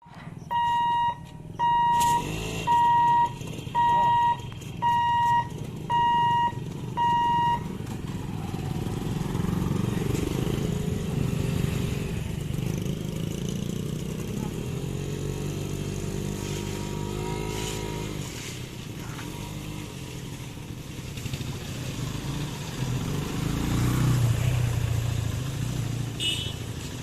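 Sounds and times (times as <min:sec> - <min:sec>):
motorcycle engines running: 0:00.1 - 0:27.0
level crossing warning beeps: 0:00.5 - 0:07.8.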